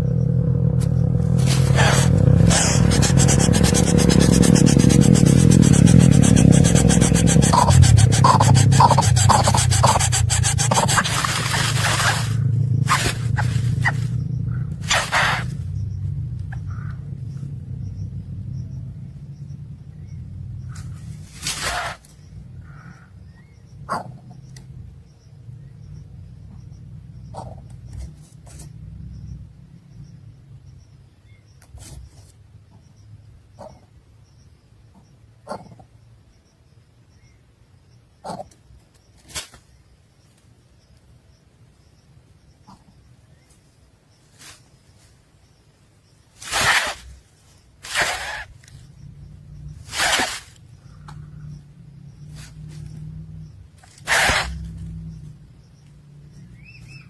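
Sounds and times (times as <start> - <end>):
nestling birds begging calls: 0.0 - 18.9, 20.0 - 24.6, 46.3 - 55.4, 56.2 - 57.0
steady low rumble: 0.0 - 31.4, 46.4 - 57.0
rustles and clicks: 0.8 - 15.7, 20.7 - 22.2, 38.8 - 40.5, 44.2 - 45.2, 46.3 - 51.3, 52.2 - 53.2, 53.8 - 55.4
soft high peeps: 1.4 - 14.1.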